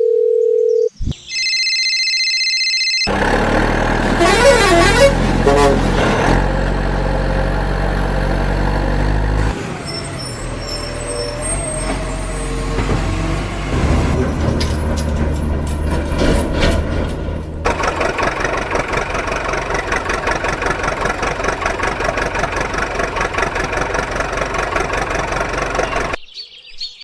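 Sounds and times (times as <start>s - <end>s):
heavy vehicle engine running: 3.1s - 26.2s
wavering horn toot: 4.1s - 6.0s.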